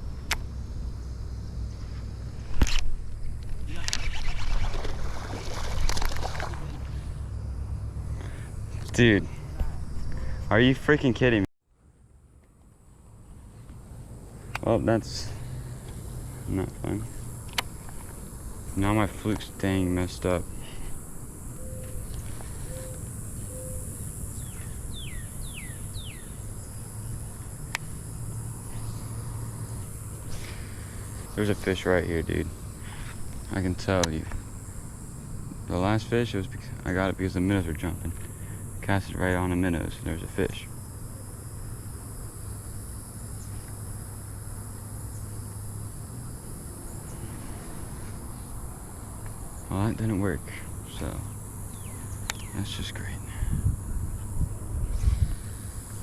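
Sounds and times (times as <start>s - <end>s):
insects buzzing: 0.0s - 56.0s
low steady hum: 0.0s - 56.0s
sharp click: 0.2s - 0.5s
faint chirps: 20.5s - 27.1s
wind rumble on microphone: 53.4s - 55.8s.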